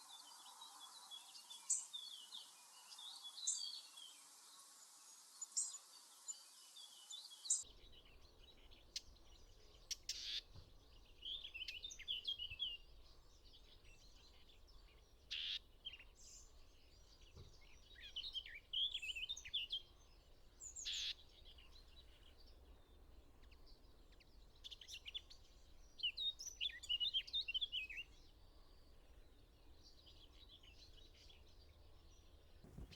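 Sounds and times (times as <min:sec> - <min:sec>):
songbirds twittering: 0:00.0 - 0:32.9
sharp bird calls: 0:32.7 - 0:32.9.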